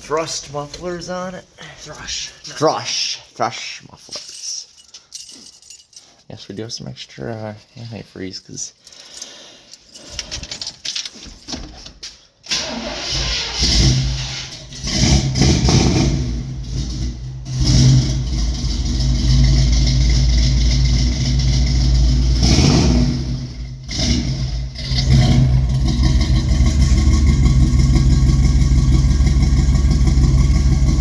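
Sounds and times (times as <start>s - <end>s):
truck engine starting and revving: 12.5s - 31.0s.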